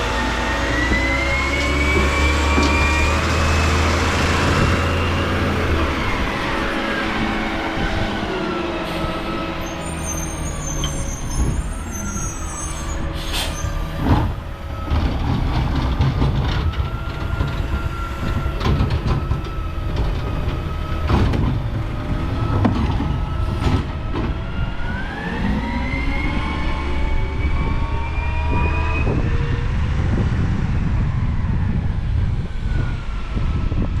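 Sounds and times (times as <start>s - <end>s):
garbage truck engine revving: 0.0s - 10.1s.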